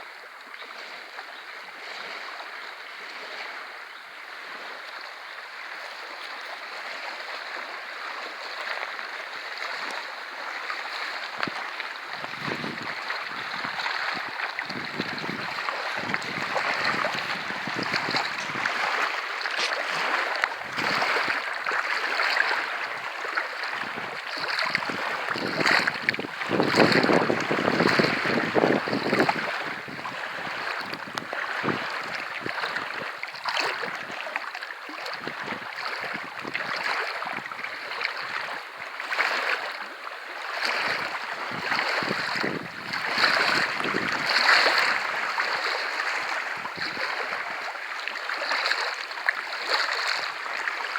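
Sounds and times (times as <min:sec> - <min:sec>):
small waves lapping at shore: 0:00.0 - 0:50.9
wind buffeting microphone: 0:11.3 - 0:21.4, 0:23.7 - 0:33.1, 0:35.2 - 0:37.6, 0:40.8 - 0:45.2, 0:46.0 - 0:47.3.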